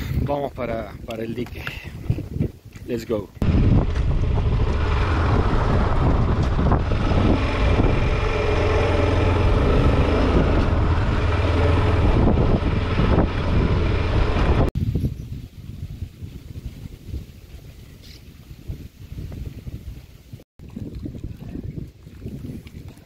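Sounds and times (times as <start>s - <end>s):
wind buffeting microphone: 0.0s - 23.0s
motorcycle engine running: 3.4s - 14.7s.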